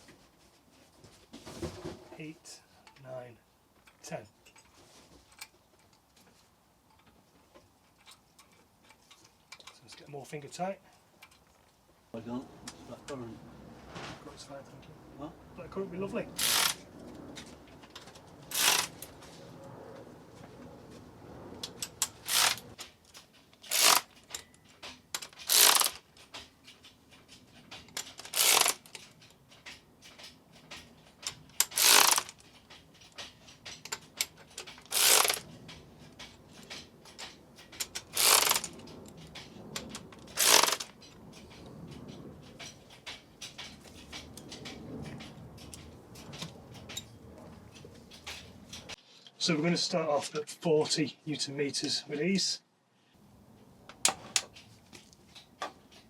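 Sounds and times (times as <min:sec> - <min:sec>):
socket ratchet clicking: 0:16.4 - 0:16.8, 0:18.5 - 0:19.1, 0:21.8 - 0:22.7, 0:23.6 - 0:24.4, 0:25.2 - 0:26.1, 0:27.8 - 0:29.3, 0:31.2 - 0:33.2, 0:33.8 - 0:35.5, 0:36.6 - 0:38.8, 0:39.8 - 0:40.9.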